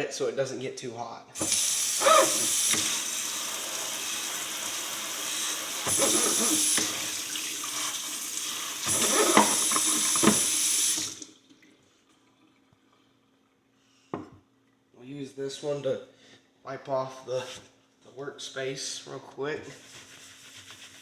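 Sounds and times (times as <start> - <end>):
tap running water into sink: 1.4 - 11.7.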